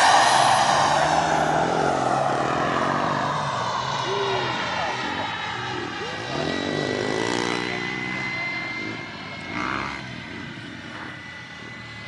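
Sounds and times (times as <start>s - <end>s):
model jet turbine whining: 0.0s - 12.0s.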